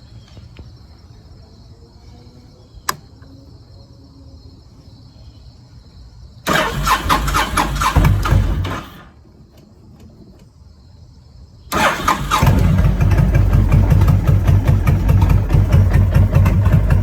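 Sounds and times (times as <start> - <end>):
sharp click: 2.8 - 3.3
electric starter cranking engine: 6.5 - 9.2, 11.7 - 17.0.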